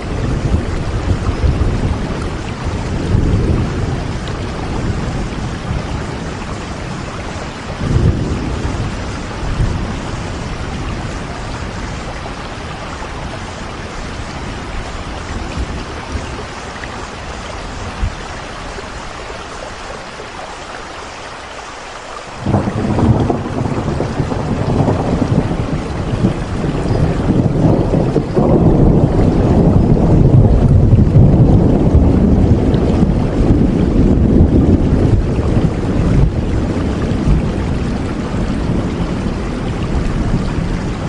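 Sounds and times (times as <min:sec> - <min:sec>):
steady rain falling: 0:00.0 - 0:41.0
low rumbles: 0:22.4 - 0:40.8.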